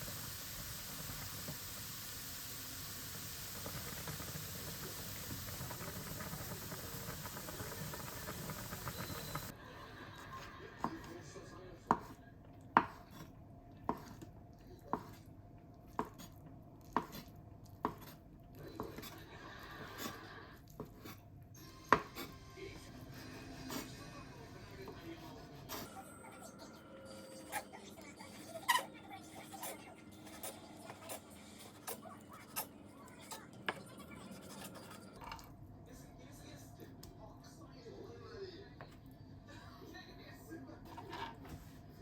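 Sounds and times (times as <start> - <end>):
steady hiss: 0.0 - 9.5
knife chopping on cutting board: 11.9 - 13.3, 13.9 - 14.3, 14.9 - 15.2, 15.9 - 16.3, 16.9 - 18.2, 21.9 - 22.3.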